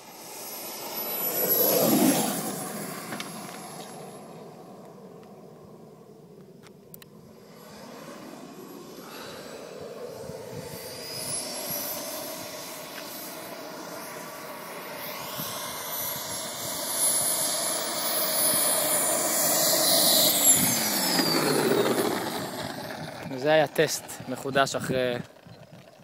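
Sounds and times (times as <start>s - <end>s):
model jet engine whine: 0.0s - 26.0s.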